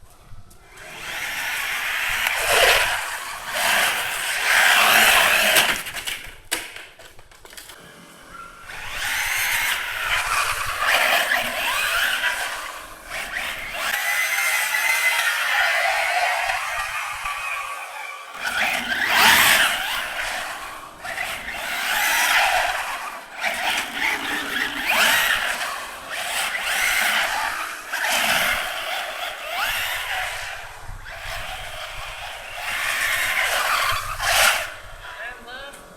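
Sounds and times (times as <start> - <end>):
electric motor whining: 0.4 - 6.4, 7.7 - 35.9
tyres skidding on ground: 0.6 - 35.9.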